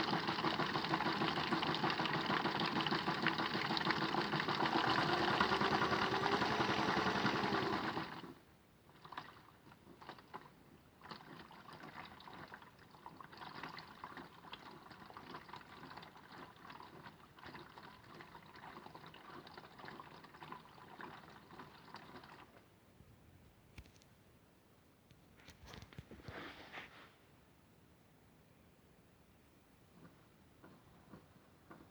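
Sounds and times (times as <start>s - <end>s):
small electric motor humming: 4.7s - 8.0s
water sloshing and trickling: 8.9s - 22.7s.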